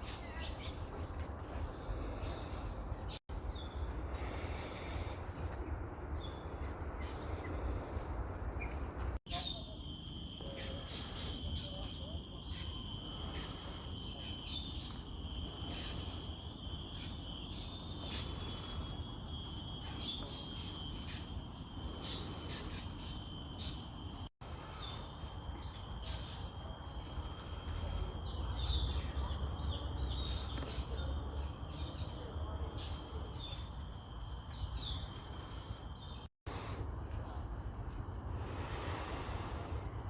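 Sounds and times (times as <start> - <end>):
insects chorus: 0.0 - 40.0
bird chirps: 8.6 - 27.1, 28.2 - 32.2.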